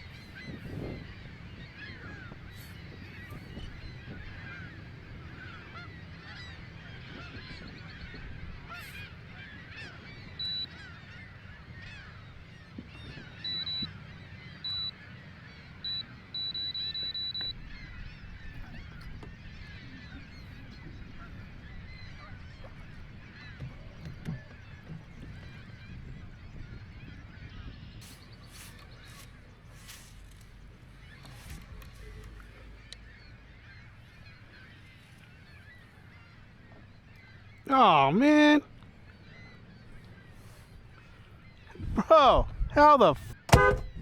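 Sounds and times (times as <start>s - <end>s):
geese honking: 0.0s - 24.8s.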